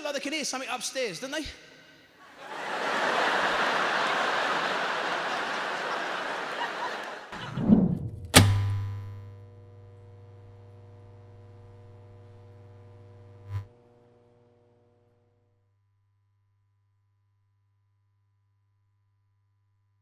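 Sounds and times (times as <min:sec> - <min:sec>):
arena crowd noise: 0:02.2 - 0:07.6
low thuds: 0:07.6 - 0:09.2
sharp hit with low musical drone: 0:08.1 - 0:09.2.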